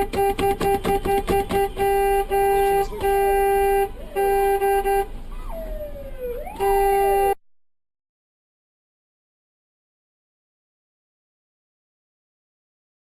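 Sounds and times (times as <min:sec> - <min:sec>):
vehicle horn honking: 0:00.0 - 0:05.1, 0:06.6 - 0:07.4
tone sliding up and down: 0:05.4 - 0:06.7.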